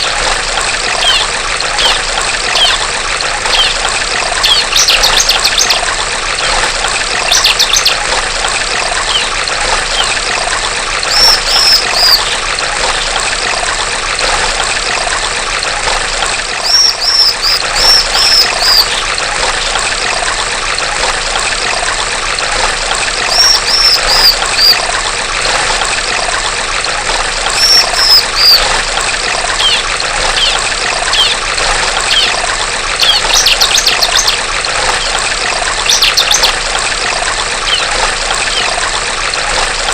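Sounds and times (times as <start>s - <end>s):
trickling stream: 0.0s - 39.9s
bird chirping and trilling: 0.9s - 2.8s, 3.4s - 5.9s, 7.2s - 8.0s, 9.0s - 10.2s, 11.1s - 12.4s, 16.6s - 19.1s, 23.3s - 24.8s, 27.5s - 28.7s, 29.6s - 31.4s, 32.0s - 32.4s, 33.0s - 35.2s, 35.8s - 36.6s, 37.6s - 38.8s.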